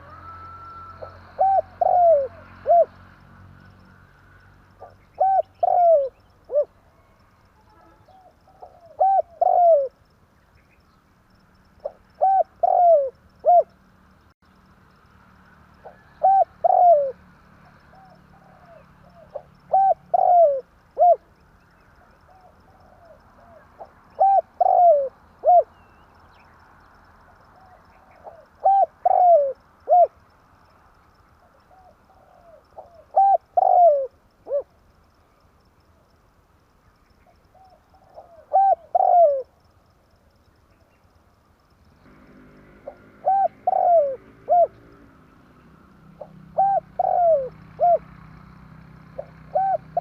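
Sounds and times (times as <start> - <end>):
dove cooing: 0.0 - 3.1, 4.8 - 10.0, 11.8 - 13.8, 15.8 - 21.3, 22.0 - 26.1, 27.4 - 30.2, 31.4 - 34.8, 37.5 - 39.6, 42.0 - 45.3, 46.0 - 48.3, 49.1 - 50.0.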